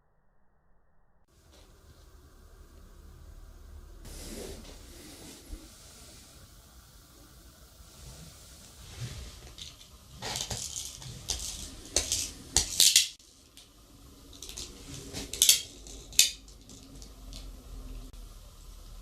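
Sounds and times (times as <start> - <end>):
small metal objects clinking: 9.4 - 13.7, 14.3 - 17.5.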